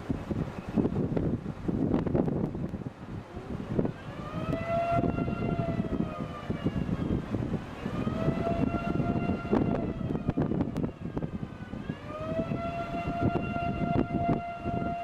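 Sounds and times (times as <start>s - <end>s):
wind noise on microphone: 0.0s - 15.0s
warning siren wailing: 3.4s - 15.0s.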